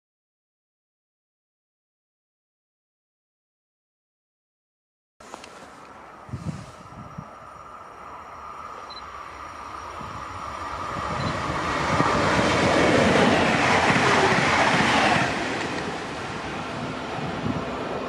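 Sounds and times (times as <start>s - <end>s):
train passing at speed: 5.2s - 18.0s.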